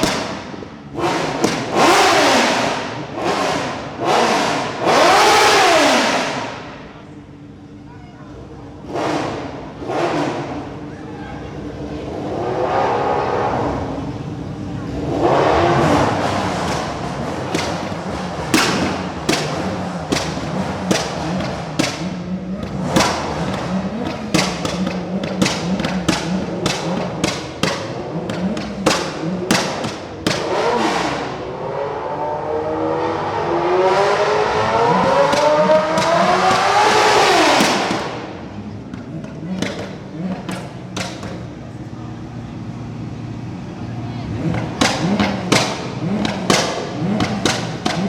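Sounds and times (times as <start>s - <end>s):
car engine running and revving: 0.0s - 7.3s, 8.7s - 10.8s, 11.6s - 48.0s
music with thumping beat: 16.6s - 30.6s.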